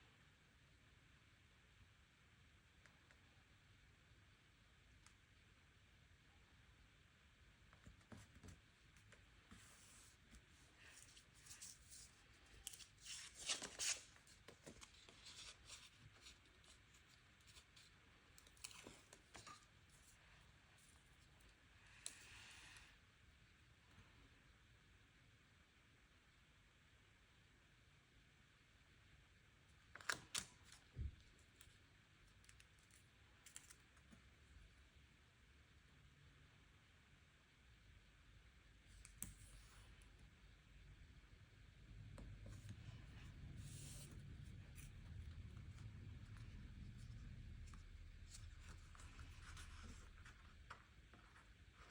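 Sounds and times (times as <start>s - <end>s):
paper crinkling: 9.5s - 20.2s, 42.5s - 51.9s.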